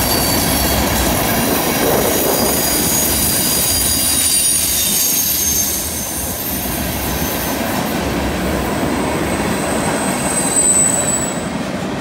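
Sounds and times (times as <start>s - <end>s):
train wheels rumbling on rails: 0.0s - 12.0s
wheel flange squeal: 2.2s - 7.6s, 9.8s - 11.4s.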